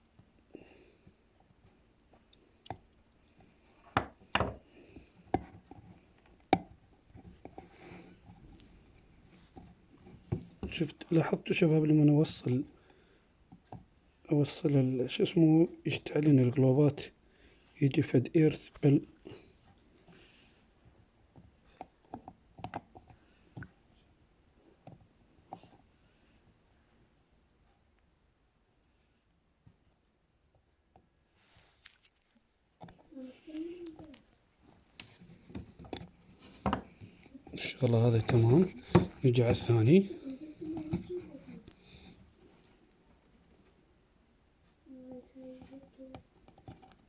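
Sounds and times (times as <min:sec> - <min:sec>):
faint rubbing: 0:31.4 - 0:42.9.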